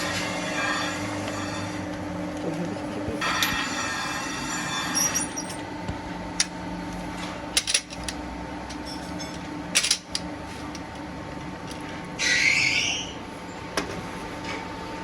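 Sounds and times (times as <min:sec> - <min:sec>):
high-pitched metallic squeal: 0:00.0 - 0:01.9, 0:03.2 - 0:05.6, 0:12.2 - 0:13.2
workshop machinery humming: 0:00.0 - 0:15.0.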